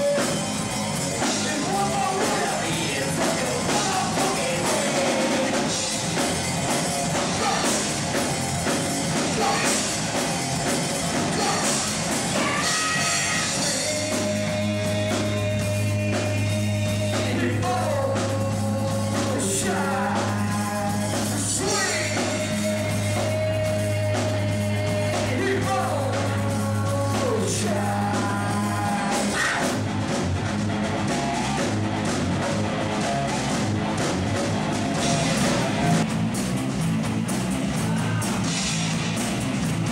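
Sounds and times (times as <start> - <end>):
person singing: 0.0 - 0.4, 1.2 - 5.9, 7.2 - 8.0, 9.2 - 10.0, 11.2 - 29.8, 37.7 - 38.5
live rock band playing: 0.0 - 39.9.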